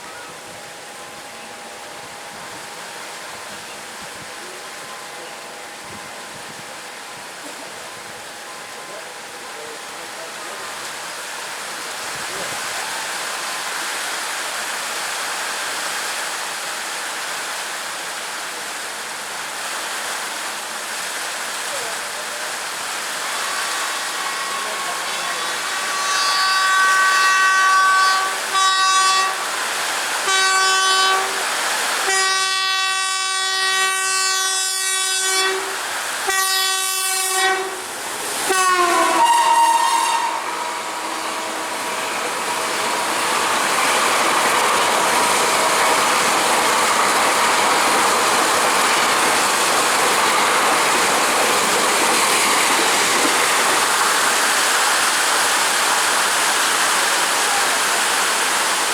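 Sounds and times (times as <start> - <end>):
heavy rain: 0.0 - 58.9
passing train rushing noise: 0.0 - 58.9
train horn blasts: 23.2 - 44.2.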